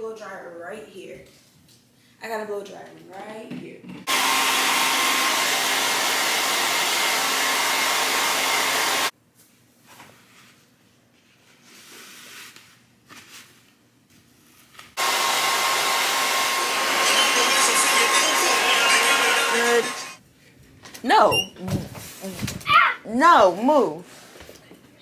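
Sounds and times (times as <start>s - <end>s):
blow dryer blowing: 4.1s - 9.1s, 15.0s - 20.2s.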